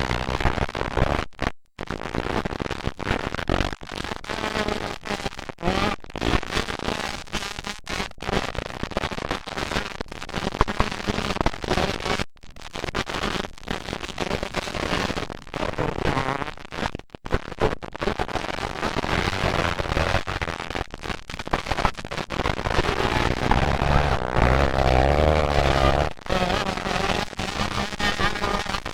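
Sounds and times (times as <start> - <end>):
motocross bikes revving: 22.9 - 26.2.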